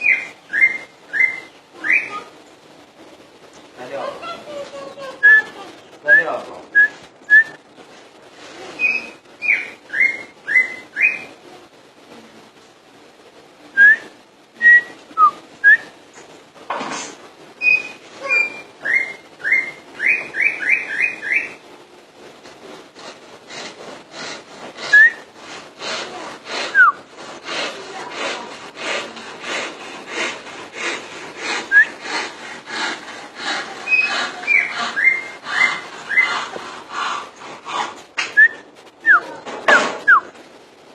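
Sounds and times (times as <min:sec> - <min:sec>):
bird singing whistled notes: 0:00.0 - 0:02.3, 0:05.2 - 0:07.6, 0:08.8 - 0:11.3, 0:13.8 - 0:15.9, 0:17.6 - 0:21.6, 0:24.9 - 0:25.3, 0:26.7 - 0:27.0, 0:31.7 - 0:32.0, 0:33.9 - 0:36.4, 0:38.4 - 0:39.4, 0:40.0 - 0:40.3.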